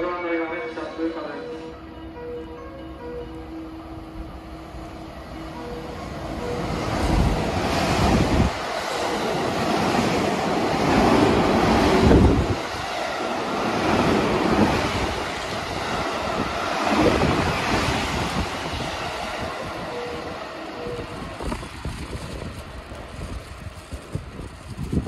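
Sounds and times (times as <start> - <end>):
rushing air: 4.5 - 25.0
train wheels on rails: 5.4 - 25.0
wind buffeting microphone: 6.2 - 25.0.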